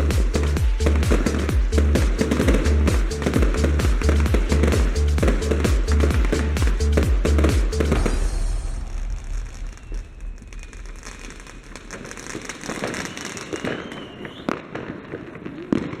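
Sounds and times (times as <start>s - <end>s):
music: 0.0s - 10.9s
fireworks crackling and popping: 0.0s - 16.0s
loud firework bang: 7.5s - 15.2s.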